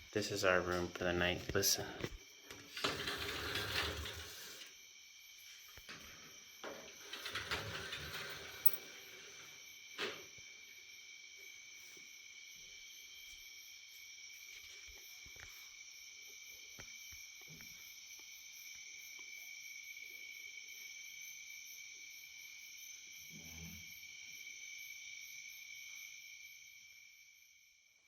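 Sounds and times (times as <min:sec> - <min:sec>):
crickets and insects trilling: 0:00.0 - 0:28.0.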